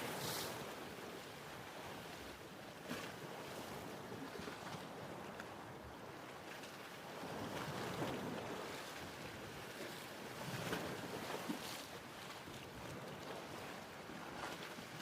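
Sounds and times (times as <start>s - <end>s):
ocean waves splashing: 0.0s - 1.2s.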